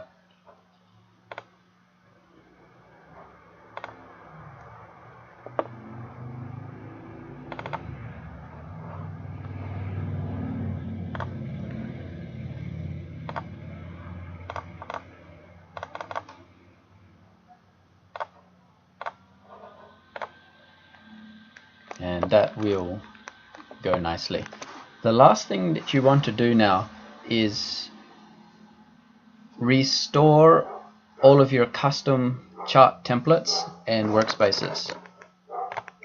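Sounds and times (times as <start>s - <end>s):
mouse and keyboard clicks: 1.3s - 1.5s, 3.8s - 4.0s, 7.5s - 7.8s, 11.1s - 11.4s, 13.3s - 13.5s, 14.4s - 15.1s, 15.8s - 16.4s, 18.1s - 18.3s, 20.2s - 20.4s, 34.9s - 36.0s
low rumble: 2.3s - 15.8s.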